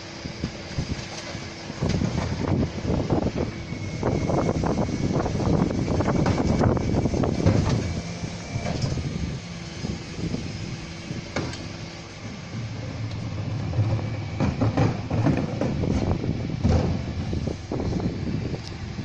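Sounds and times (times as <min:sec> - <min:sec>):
lorry engine humming: 0:00.0 - 0:19.0
steady whine: 0:00.0 - 0:19.0
metallic clanks of bins: 0:13.2 - 0:17.1.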